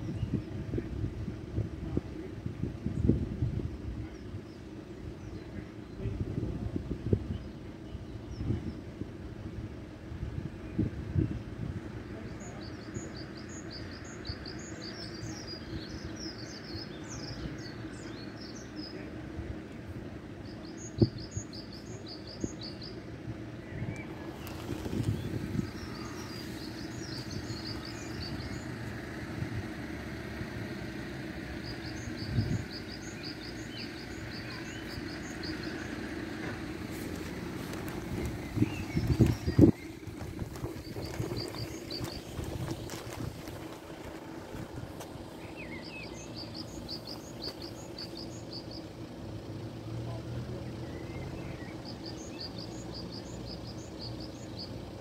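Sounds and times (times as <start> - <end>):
small birds chirping: 10.6 - 55.0
small songbird singing: 12.1 - 19.3, 20.2 - 55.0
steady low rumble: 19.0 - 49.9.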